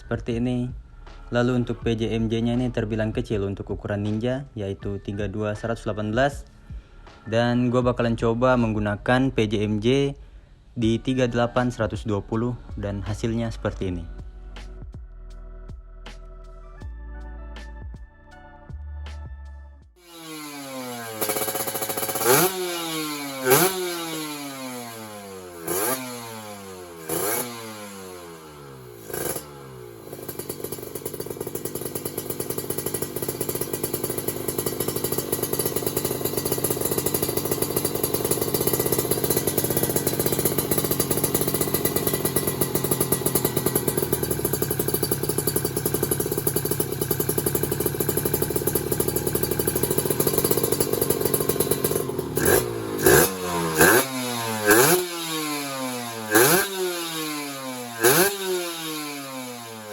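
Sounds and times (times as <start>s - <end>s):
motorcycle engine running steadily: 0.0s - 10.2s, 20.0s - 59.9s
two-stroke motorcycle engine revving: 20.0s - 59.9s.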